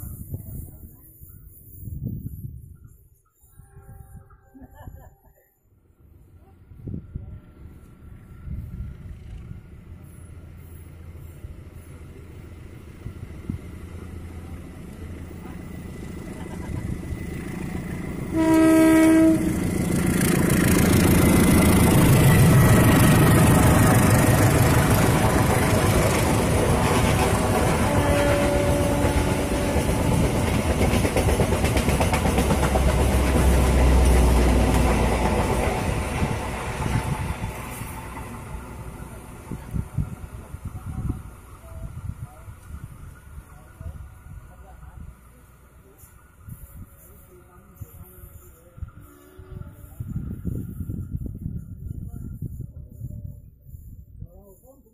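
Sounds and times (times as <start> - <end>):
train passing: 0.0 - 54.0
train horn blast: 3.4 - 4.6, 18.2 - 19.9, 27.6 - 30.3, 49.0 - 50.0.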